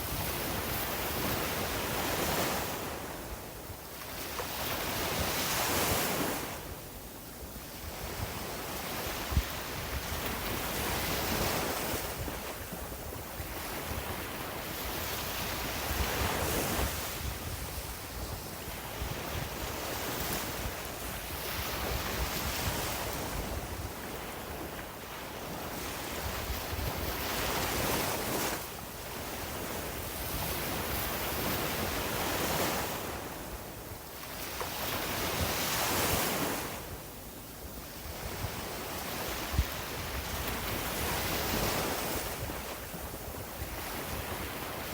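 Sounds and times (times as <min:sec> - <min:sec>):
wind buffeting microphone: 0:07.8 - 0:24.8.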